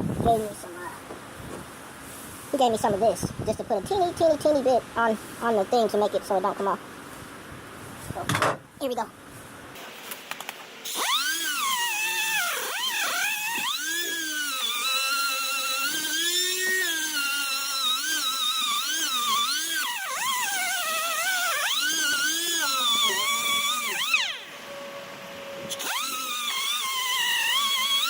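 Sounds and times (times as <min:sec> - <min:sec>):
air sander whining: 0:10.8 - 0:28.0.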